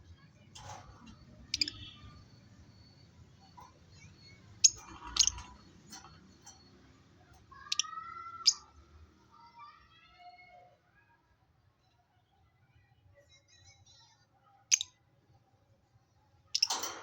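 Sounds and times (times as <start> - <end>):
lovebirds chirping: 1.4 - 2.2, 4.0 - 5.6, 16.6 - 16.8.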